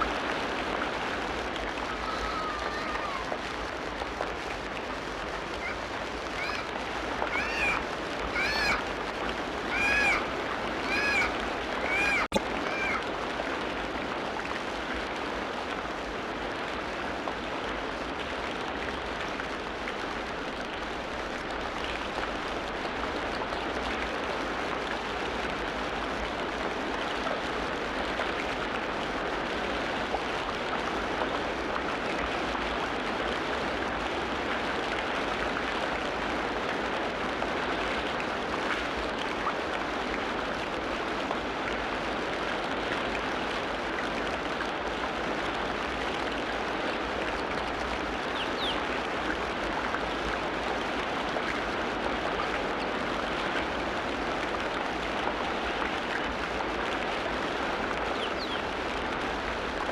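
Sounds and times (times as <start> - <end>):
stream running water: 0.0 - 59.9
faint bird chirps: 58.2 - 58.6.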